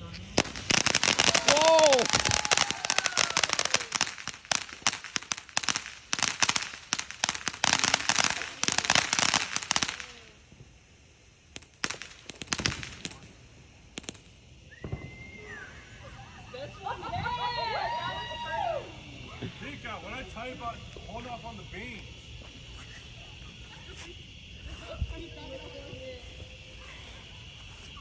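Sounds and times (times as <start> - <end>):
firework crackling pops: 0.0 - 16.0.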